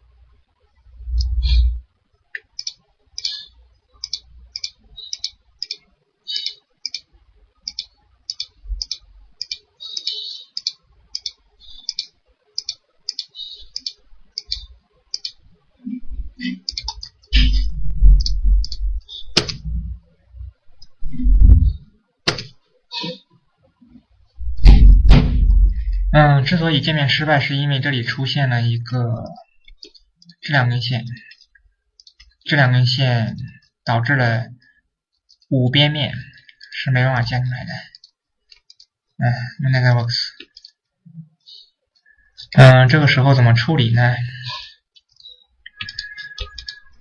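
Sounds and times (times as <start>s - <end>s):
computer mouse clicking: 2.4s - 15.4s, 16.6s - 17.3s, 18.2s - 19.7s, 37.9s - 38.9s, 40.4s - 40.8s, 45.0s - 47.0s
low thuds: 17.4s - 22.5s, 24.4s - 26.4s.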